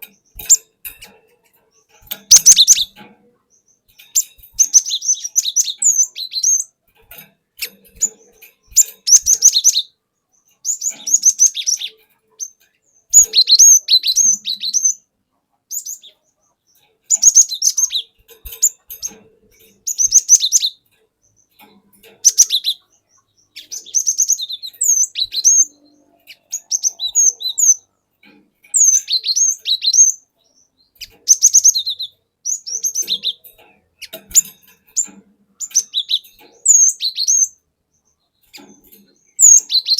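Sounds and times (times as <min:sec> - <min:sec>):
bird singing whistled notes: 0:02.3 - 0:06.7, 0:08.0 - 0:15.1, 0:15.7 - 0:16.2, 0:17.1 - 0:18.8, 0:19.8 - 0:21.6, 0:22.2 - 0:27.9, 0:28.7 - 0:33.4, 0:34.0 - 0:38.2, 0:39.2 - 0:39.9.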